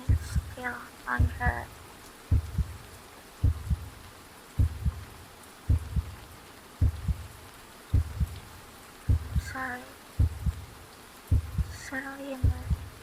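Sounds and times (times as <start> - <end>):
heartbeat thumps: 0.0 - 0.6, 1.2 - 1.6, 2.3 - 4.0, 4.6 - 8.5, 9.1 - 9.6, 10.2 - 11.8, 12.4 - 13.0
faint steady hiss: 0.0 - 13.0.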